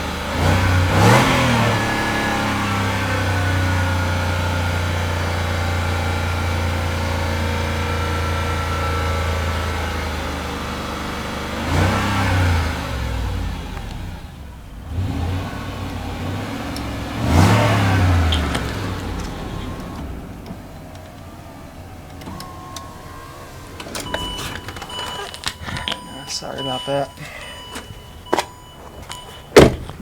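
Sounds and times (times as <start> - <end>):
car engine revving: 0.0 - 30.0
throttle blips: 24.0 - 29.6.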